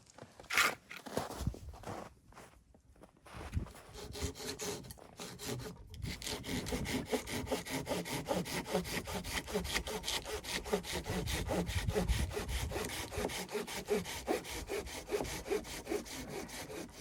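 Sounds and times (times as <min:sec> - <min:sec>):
hand saw cutting wood: 0:00.5 - 0:00.8, 0:03.9 - 0:17.0.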